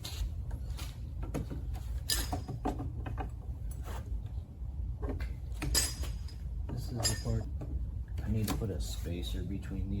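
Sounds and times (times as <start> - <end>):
metal parts clicking and knocking: 1.3 - 3.4, 5.1 - 7.8.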